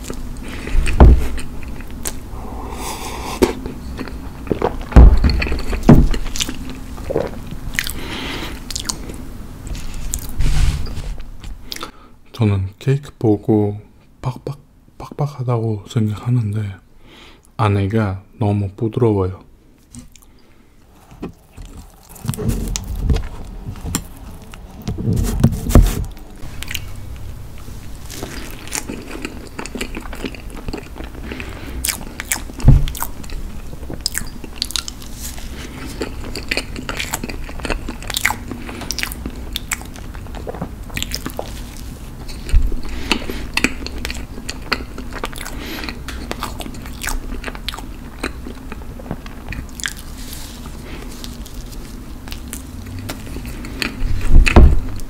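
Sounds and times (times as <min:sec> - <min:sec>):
close-miked chewing of cake: 0:00.0 - 0:10.4, 0:27.8 - 0:55.0
low thumps: 0:00.9 - 0:01.4, 0:04.9 - 0:06.2, 0:32.6 - 0:33.0.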